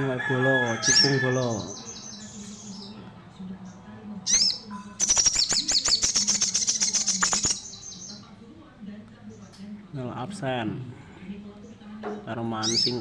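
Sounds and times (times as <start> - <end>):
bird singing high chips: 4.3 - 8.2.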